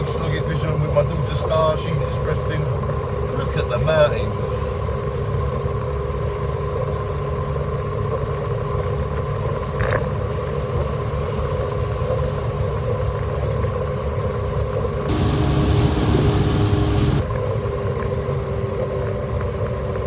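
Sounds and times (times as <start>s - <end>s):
car engine hum: 15.1s - 17.2s
tyre and road rumble: 15.1s - 17.2s.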